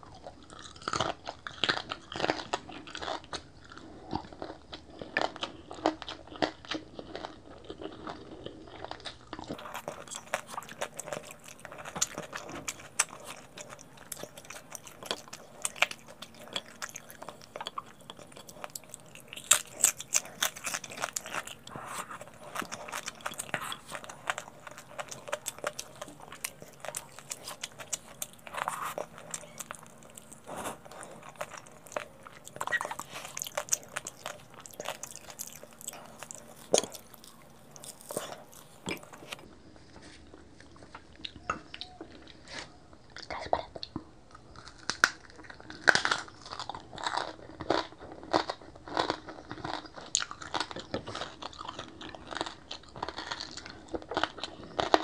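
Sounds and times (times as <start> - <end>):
chewing crispy food: 0.0 - 55.0
sharp crunches: 9.6 - 39.4.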